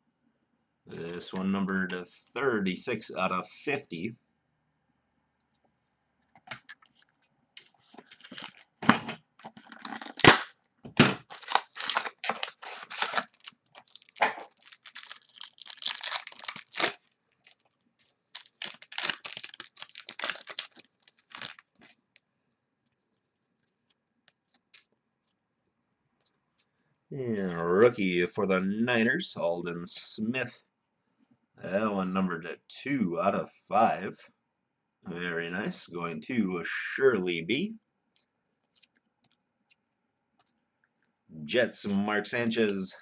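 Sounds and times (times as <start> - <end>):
card pack wrappers tearing: 7.6 - 8.8, 9.6 - 10.5, 11.2 - 22.0.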